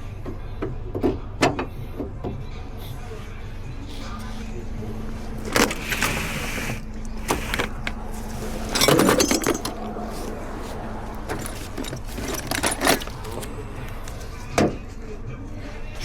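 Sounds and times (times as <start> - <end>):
hand tools clinking on metal: 5.4 - 6.3, 7.2 - 14.6.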